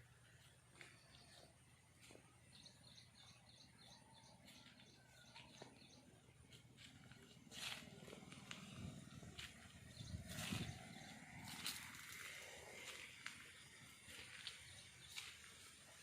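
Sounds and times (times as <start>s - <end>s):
bird chirping: 0.3s - 6.9s.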